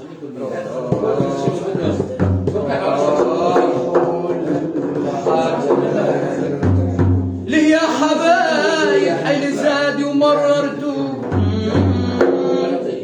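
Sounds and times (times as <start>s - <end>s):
man singing ornamented phrase: 7.5s - 13.0s.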